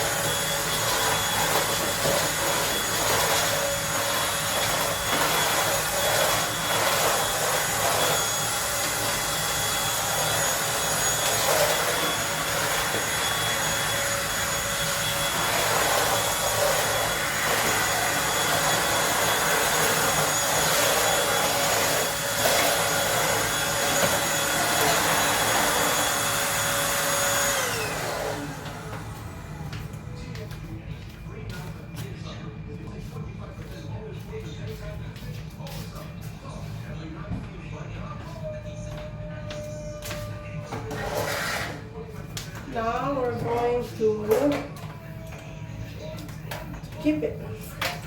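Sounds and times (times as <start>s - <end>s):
vacuum motor spinning down: 0.0s - 30.0s
vacuum cleaner running: 0.0s - 48.0s.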